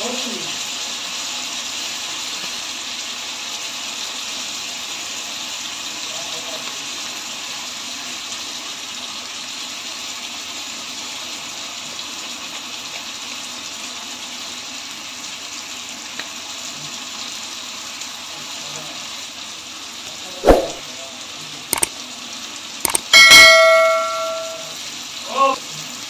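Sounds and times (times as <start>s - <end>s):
vegetables sizzling in oil: 0.0s - 23.9s, 24.6s - 26.0s
spoon clanking on pot: 22.9s - 24.8s.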